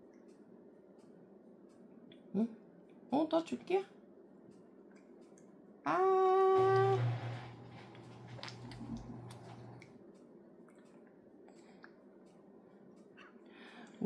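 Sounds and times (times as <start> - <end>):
low steady hum: 0.0 - 14.0
held voice note: 5.9 - 7.4
baby eating wet squishing: 7.9 - 10.0, 10.6 - 12.1.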